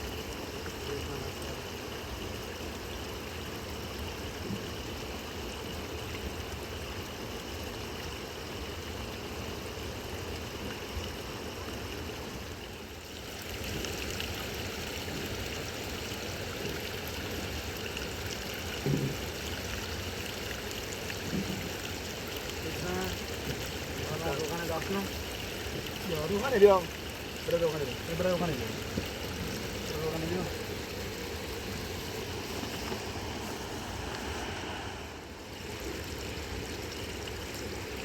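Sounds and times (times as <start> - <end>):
river rushing: 23.9 - 38.0.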